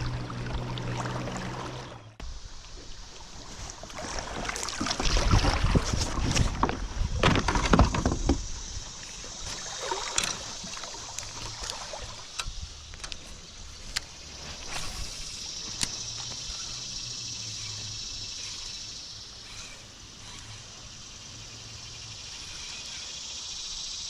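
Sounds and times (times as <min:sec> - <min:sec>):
water movement: 0:00.0 - 0:23.2
small clicks: 0:11.1 - 0:14.1.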